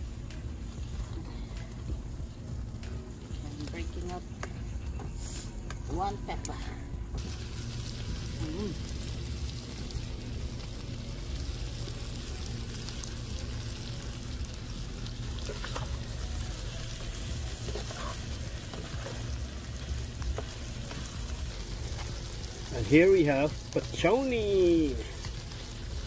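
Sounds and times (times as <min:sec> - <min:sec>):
low steady rumble: 0:00.0 - 0:26.0
curry sizzling in a pan: 0:07.2 - 0:26.0.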